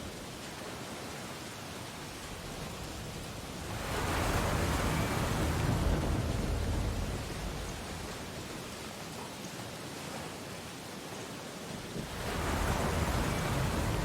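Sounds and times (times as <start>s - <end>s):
surf washing on beach: 0.0s - 14.0s
wave breaking: 3.6s - 8.5s, 12.0s - 14.0s.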